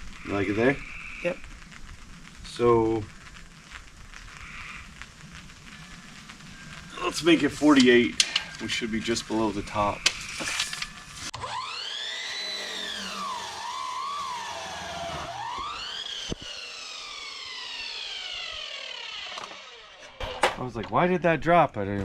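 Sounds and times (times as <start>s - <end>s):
siren wailing: 8.6s - 20.2s.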